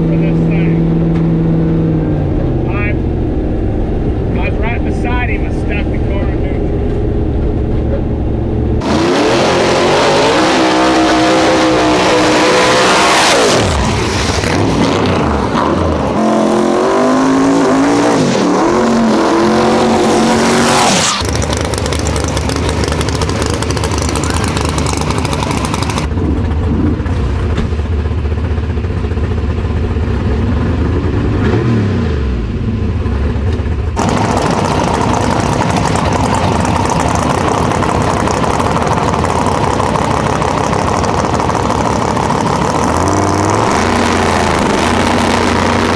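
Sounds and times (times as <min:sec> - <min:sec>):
race cars accelerating hard: 0:08.8 - 0:26.2, 0:34.0 - 0:45.9.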